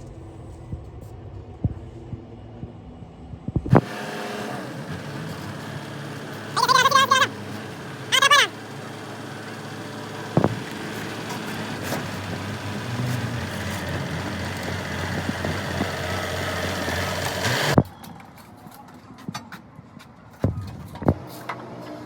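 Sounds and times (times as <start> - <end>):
engine idling: 3.7 - 17.8.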